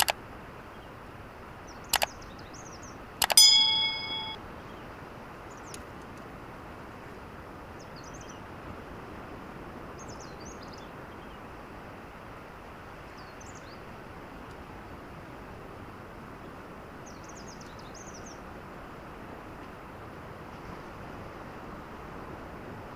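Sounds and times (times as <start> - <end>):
small animal chirping: 1.9 - 2.2, 3.2 - 4.4.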